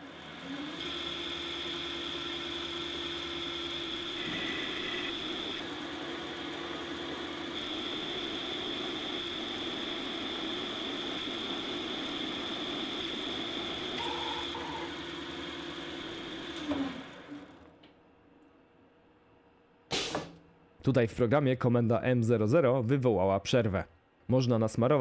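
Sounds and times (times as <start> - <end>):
lathe whirring and whining: 0.0 - 17.9
short knock: 19.9 - 20.4.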